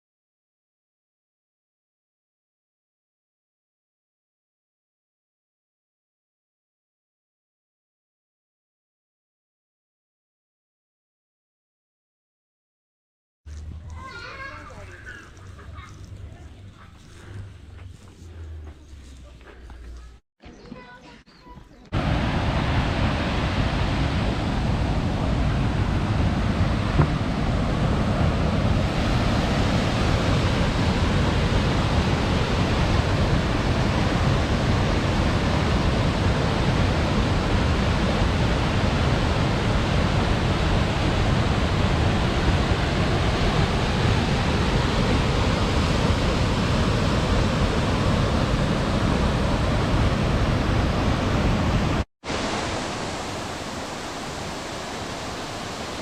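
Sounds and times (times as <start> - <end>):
waterfall rushing: 21.9 - 56.0.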